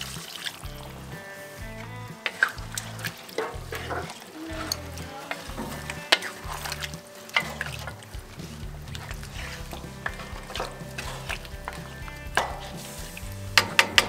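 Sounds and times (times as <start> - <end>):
wooden spoon stirring stew: 0.0 - 14.0
spoon knocking on iron pot: 11.6 - 12.7, 13.6 - 14.0.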